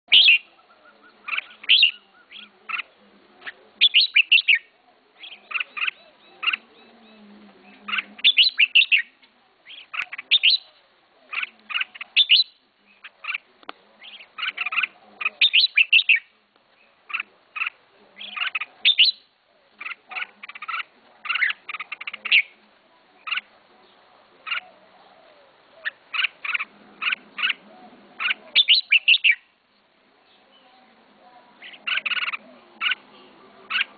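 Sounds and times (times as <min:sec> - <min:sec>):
bird singing whistled phrases: 0:03.8 - 0:04.7, 0:08.2 - 0:09.1, 0:12.2 - 0:12.6, 0:18.9 - 0:19.3, 0:28.6 - 0:29.5.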